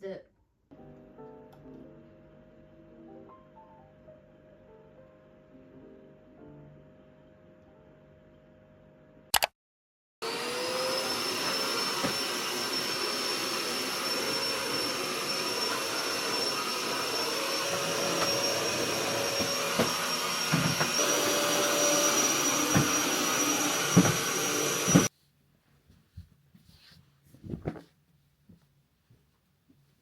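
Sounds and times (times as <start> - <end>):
vacuum cleaner running: 10.2 - 25.1.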